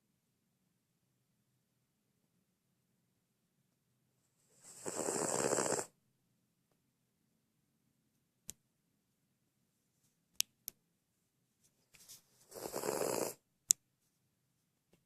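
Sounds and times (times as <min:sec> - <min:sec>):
dog snoring: 0:04.6 - 0:05.9, 0:12.5 - 0:13.4.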